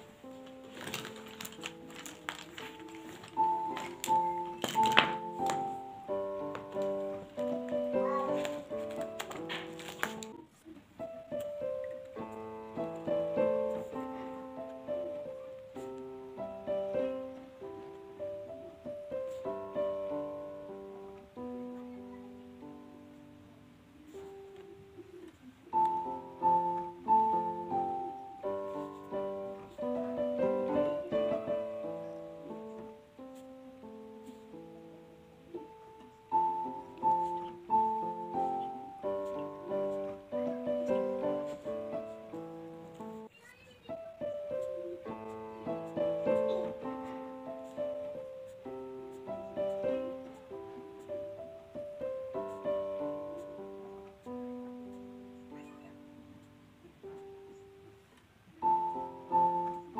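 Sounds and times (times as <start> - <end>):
gentle piano music: 0.0 - 59.9.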